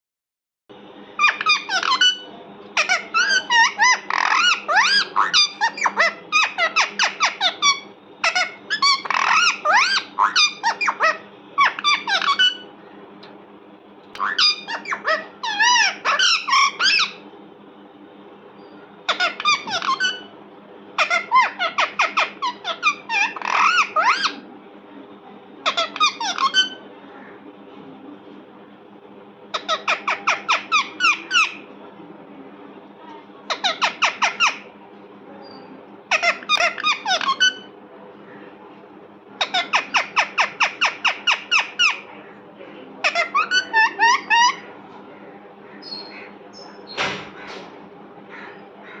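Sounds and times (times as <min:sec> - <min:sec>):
parrot calling with squeaky notes: 0:01.2 - 0:12.7, 0:14.2 - 0:17.2, 0:19.1 - 0:20.3, 0:21.0 - 0:24.4, 0:25.6 - 0:26.8, 0:29.6 - 0:31.7, 0:33.5 - 0:34.7, 0:35.4 - 0:37.7, 0:39.4 - 0:42.1, 0:43.0 - 0:44.7.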